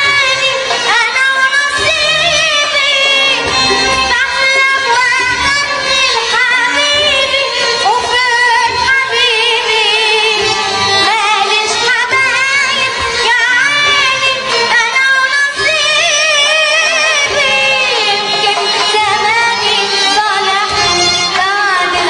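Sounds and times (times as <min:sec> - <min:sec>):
instrumental accompaniment: 0:00.0 - 0:22.0.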